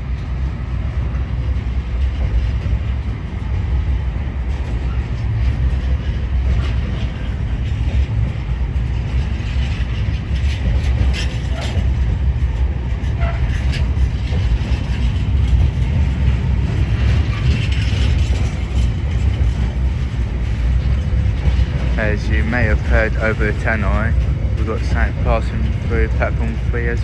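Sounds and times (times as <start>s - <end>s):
freight train rumbling: 0.0s - 27.0s
train wheel clicks: 0.2s - 27.0s
train wheel squeals: 4.6s - 26.6s
public-address announcement: 21.9s - 27.0s.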